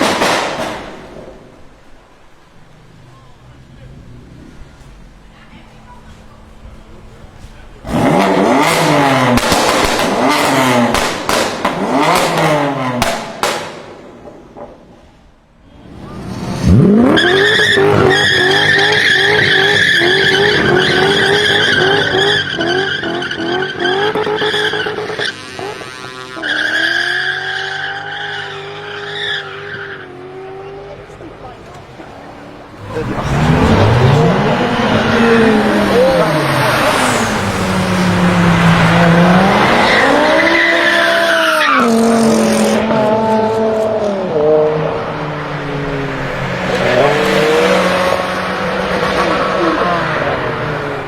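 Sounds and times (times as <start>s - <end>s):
car engine revving: 7.0s - 14.6s, 15.8s - 51.0s
exhaust pops: 7.4s - 15.1s
tyres squealing: 16.7s - 37.8s.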